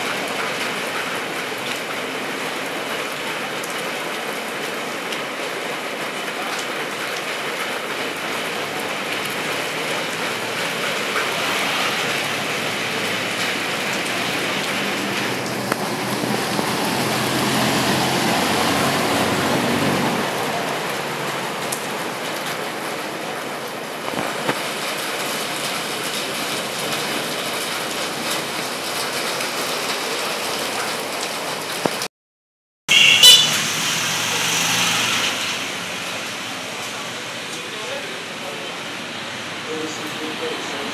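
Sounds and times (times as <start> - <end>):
rain on a paved street: 0.0 - 32.1, 32.9 - 40.9
bus engine passing: 8.1 - 22.8, 33.2 - 40.9.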